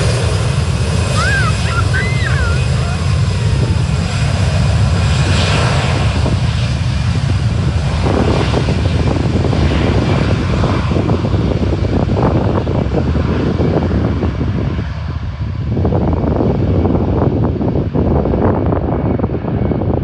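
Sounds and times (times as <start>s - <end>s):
jet engine hiss: 0.0s - 11.1s
jet engines rumbling: 0.0s - 20.0s.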